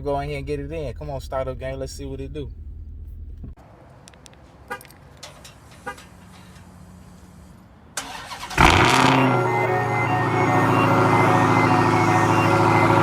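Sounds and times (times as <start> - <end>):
car engine starting and idling: 0.0 - 4.4, 5.0 - 13.0.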